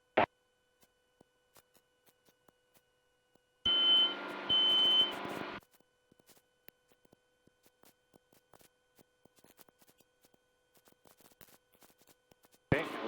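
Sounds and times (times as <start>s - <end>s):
short electronic beeps: 3.7s - 5.2s
burst of static noise: 12.7s - 13.0s.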